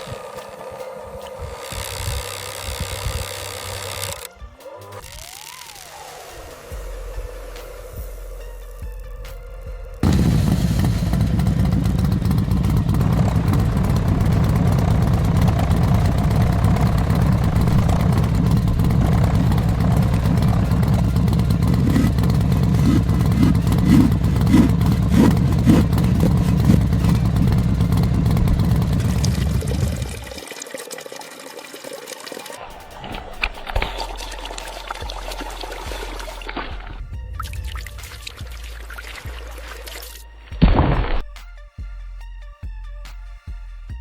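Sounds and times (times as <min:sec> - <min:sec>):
engine pulsing rumble: 0:00.0 - 0:04.3, 0:06.7 - 0:30.5, 0:32.6 - 0:41.4
loud engine knocks: 0:10.0 - 0:29.7.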